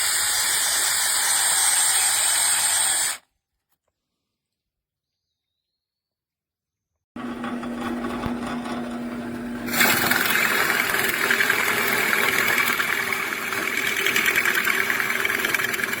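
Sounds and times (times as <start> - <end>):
power drill cutting into wood: 0.0 - 3.2, 7.4 - 16.0.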